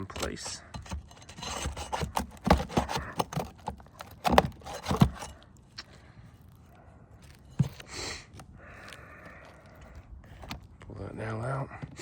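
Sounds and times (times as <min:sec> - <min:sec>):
tool scraping under roof shingles: 0:00.0 - 0:10.9.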